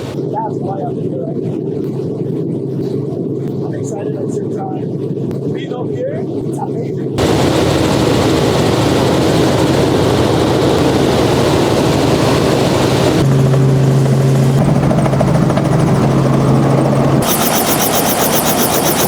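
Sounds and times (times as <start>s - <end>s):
helicopter rotor and engine noise: 0.0s - 19.0s
rapid rotor beating: 7.2s - 19.0s.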